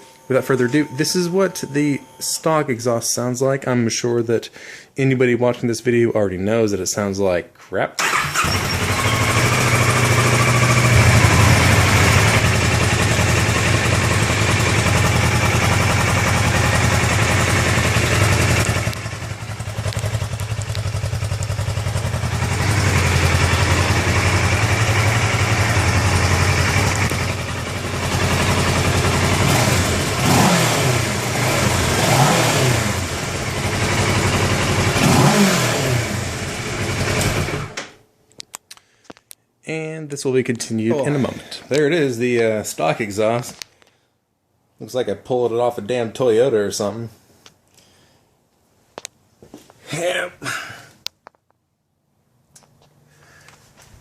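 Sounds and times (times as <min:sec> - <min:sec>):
motorcycle throttle blips: 0:08.0 - 0:37.5
motorcycle engine idling: 0:08.1 - 0:35.4, 0:36.0 - 0:37.8.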